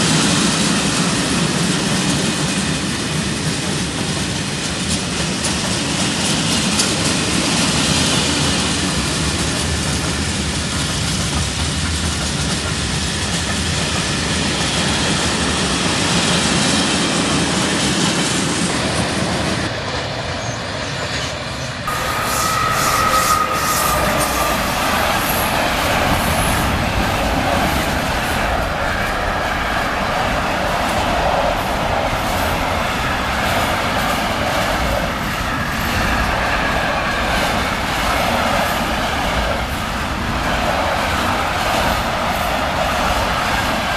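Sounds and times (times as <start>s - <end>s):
trains passing on rails: 0.0s - 43.9s
high squeal: 20.4s - 27.1s.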